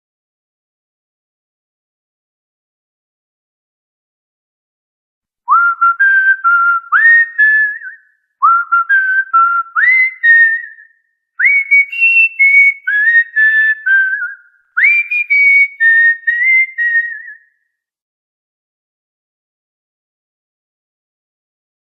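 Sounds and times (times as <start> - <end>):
cockatiel whistling a tune: 5.5 - 17.5.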